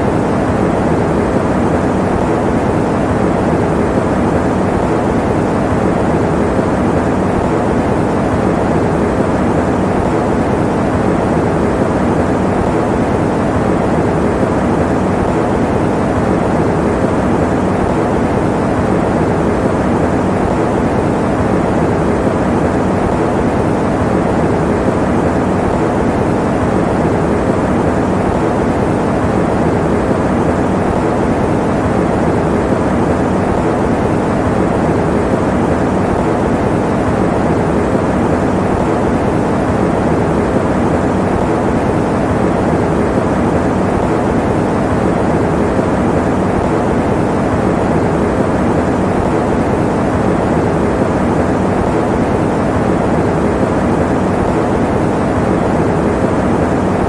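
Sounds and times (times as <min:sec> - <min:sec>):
electric fan running: 0:00.0 - 0:57.0.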